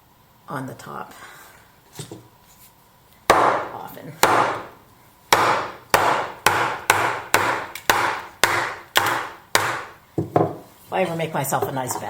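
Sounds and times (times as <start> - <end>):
tool striking green wood: 3.3 - 10.6.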